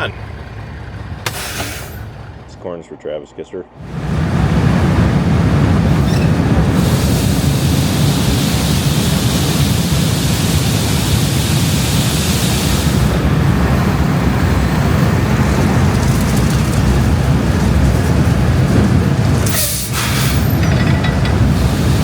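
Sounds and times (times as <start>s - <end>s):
truck engine rumbling: 0.0s - 22.0s
loud rushing hiss: 5.8s - 14.2s, 18.5s - 22.0s.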